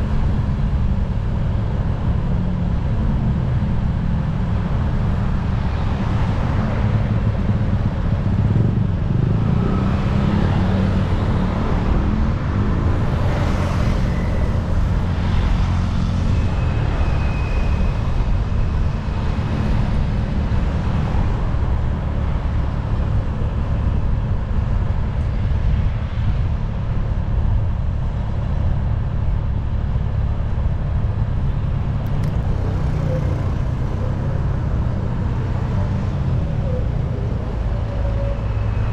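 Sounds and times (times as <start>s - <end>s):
low engine rumble: 11.9s - 38.9s.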